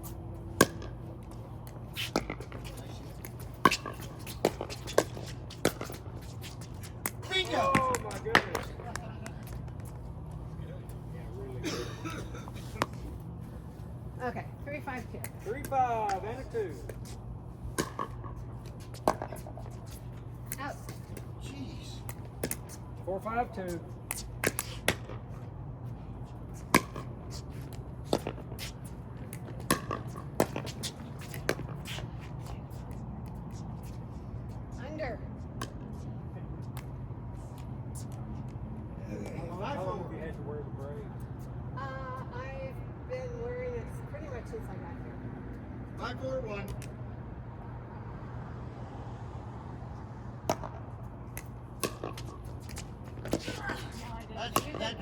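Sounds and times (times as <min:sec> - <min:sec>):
ball bouncing: 0:00.0 - 0:10.5, 0:16.8 - 0:22.8, 0:24.1 - 0:25.4, 0:26.6 - 0:33.6, 0:50.4 - 0:55.0
steady low hum: 0:00.0 - 0:55.0.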